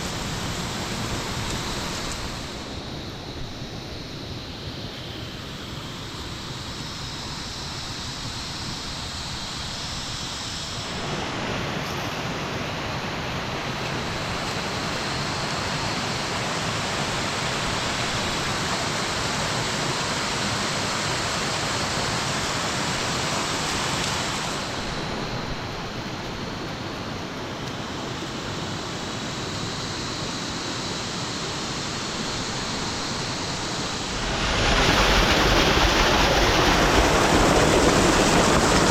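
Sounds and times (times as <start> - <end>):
heavy rain falling: 32.6 - 38.9.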